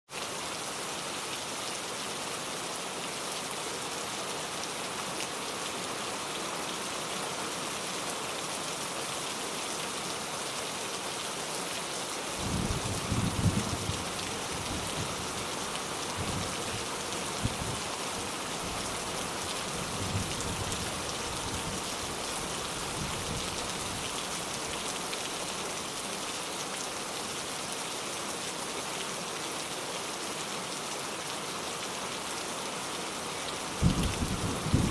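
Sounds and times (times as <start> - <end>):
steady rain falling: 0.1 - 34.9
thunder rumbling and cracking: 33.8 - 34.9.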